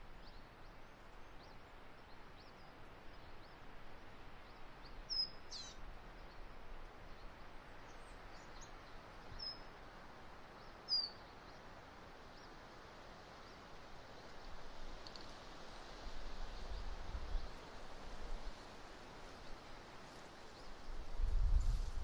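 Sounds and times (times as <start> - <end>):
bird chirps: 10.9 - 11.3
strong wind on microphone: 21.0 - 22.0.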